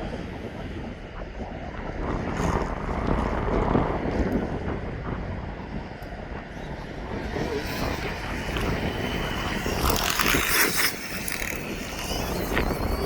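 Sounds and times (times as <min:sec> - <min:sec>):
wind rumbling on microphone: 0:00.0 - 0:13.0
electric motor whining: 0:06.4 - 0:13.0.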